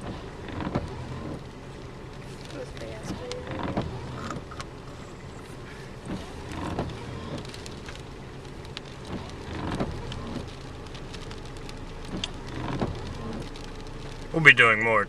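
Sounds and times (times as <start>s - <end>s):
low rumble: 0.0s - 15.0s
rain pattering on a truck: 0.0s - 15.0s.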